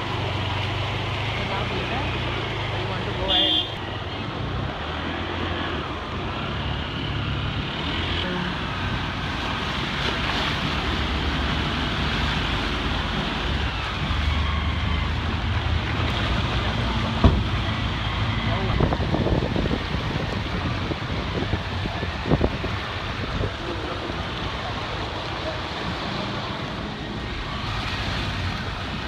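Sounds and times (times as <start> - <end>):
steady rushing noise: 0.0 - 29.0
vehicle engines running: 0.0 - 29.0
sharp knock: 17.2 - 17.5.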